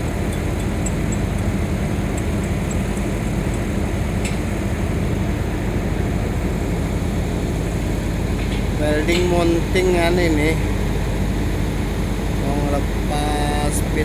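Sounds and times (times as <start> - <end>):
faint high ticks: 0.0 - 5.0
diesel engine rumbling: 0.0 - 13.9.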